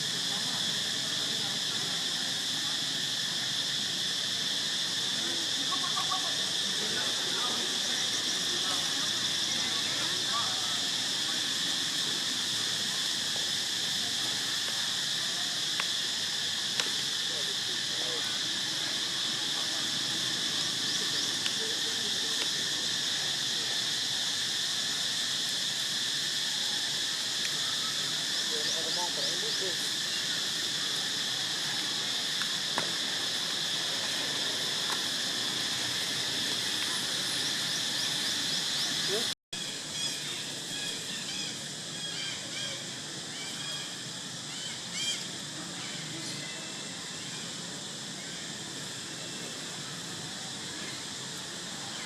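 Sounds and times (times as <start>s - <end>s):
insects droning: 0.0s - 52.0s.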